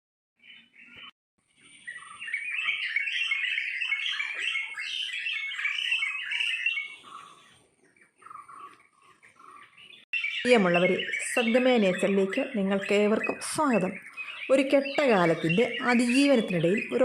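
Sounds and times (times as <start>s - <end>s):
birds chirping: 0.4s - 17.0s.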